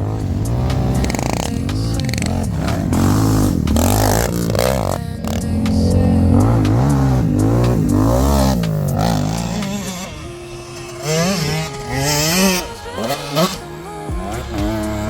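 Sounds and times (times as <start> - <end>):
quad engine revving: 0.0 - 15.0.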